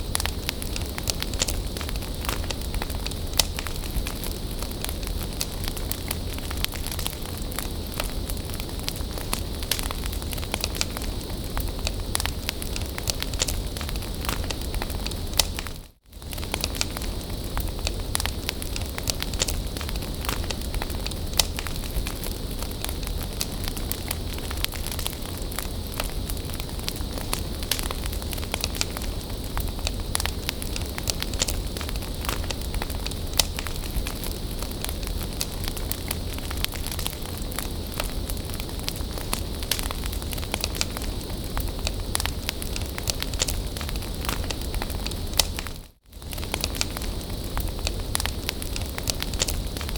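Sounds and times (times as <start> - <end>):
bonfire crackling and hissing: 0.0 - 49.9.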